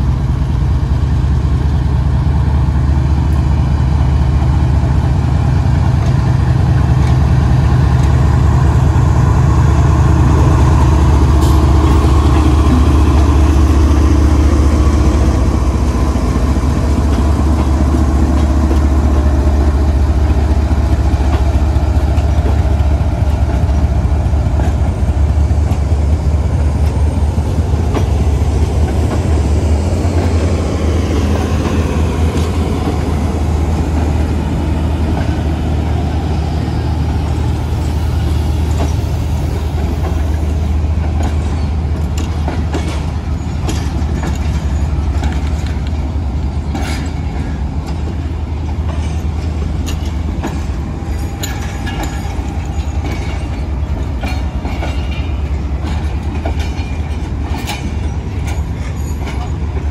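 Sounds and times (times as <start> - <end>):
train coaches rumbling: 0.0 - 59.9
wheels clicking over rail joints: 39.8 - 59.9.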